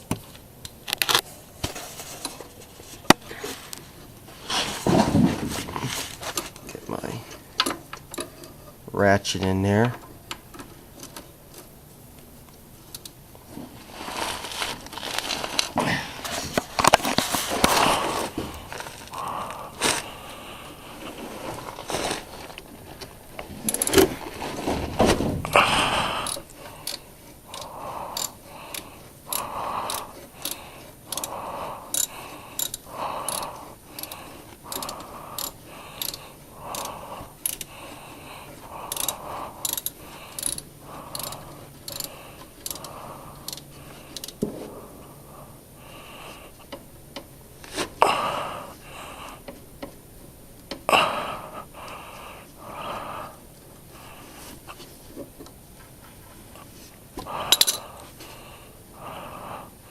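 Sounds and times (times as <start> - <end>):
socket ratchet clicking: 26.2 - 31.3, 31.9 - 37.7, 38.9 - 44.4, 57.5 - 57.8
tool clattering: 57.5 - 57.8.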